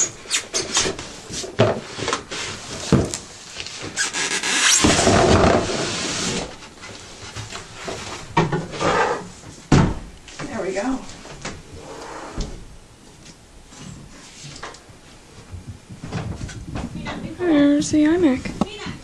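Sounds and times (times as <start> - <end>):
styrofoam squeaking and rubbing: 0.0 - 1.2, 3.6 - 6.8
scraping rub: 3.6 - 8.2.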